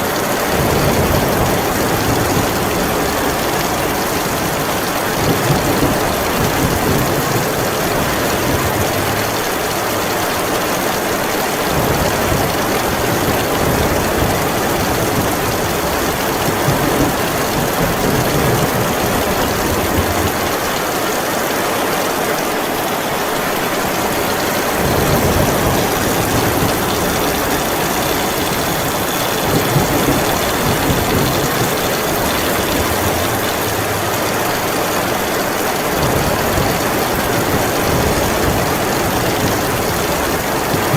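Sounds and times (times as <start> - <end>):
heavy rain falling: 0.0 - 40.9
thunder rumbling: 0.1 - 10.4, 23.8 - 40.9.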